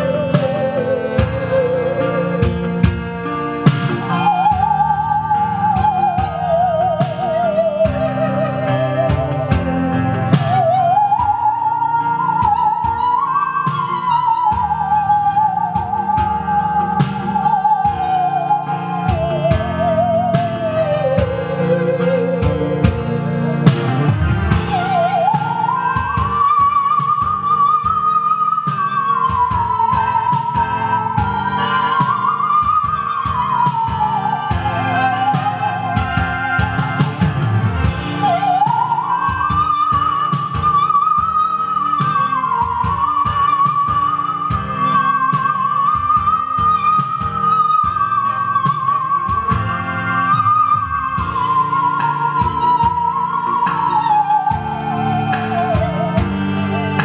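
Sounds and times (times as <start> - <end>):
keyboard chords: 0.0 - 13.7, 15.6 - 26.3
drum beat: 0.0 - 27.6, 29.3 - 57.0
musical saw melody: 0.0 - 57.0.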